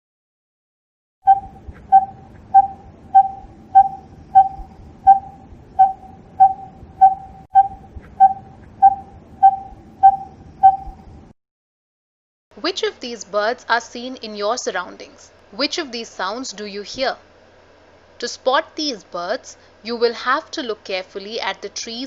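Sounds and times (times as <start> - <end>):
bird calling whistle-like note: 1.3 - 11.0.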